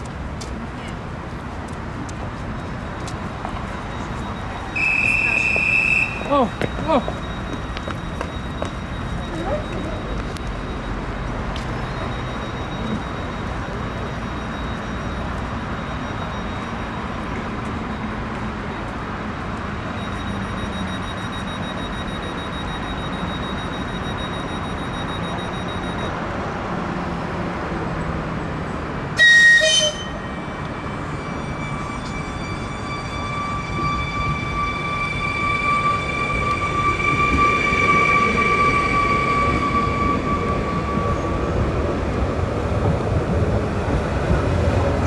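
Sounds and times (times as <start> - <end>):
approaching train whine: 0.0 - 26.2, 29.0 - 45.0
train horn blast: 4.8 - 6.3, 29.2 - 41.4.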